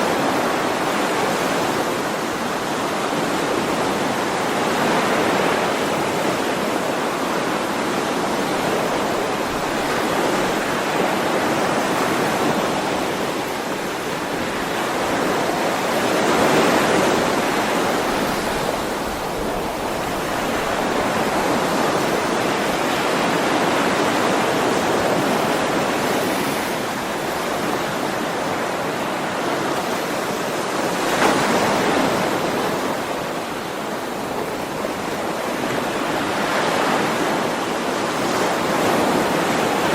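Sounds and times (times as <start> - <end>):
ocean waves washing onto shore: 0.0 - 39.9.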